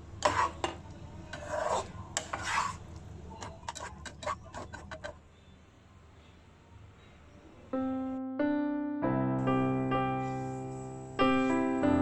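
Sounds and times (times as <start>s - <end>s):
scraping rubs: 1.3s - 2.8s.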